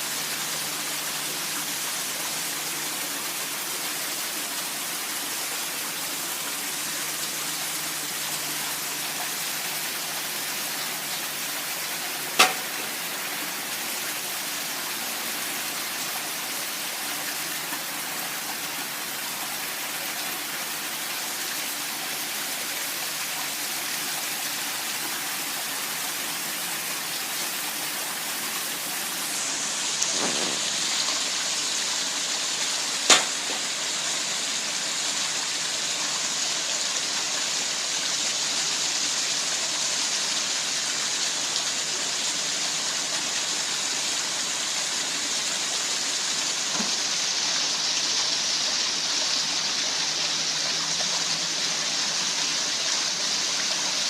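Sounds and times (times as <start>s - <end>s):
water rushing: 0.0s - 54.0s
sharp click: 12.4s - 12.9s, 33.1s - 33.6s.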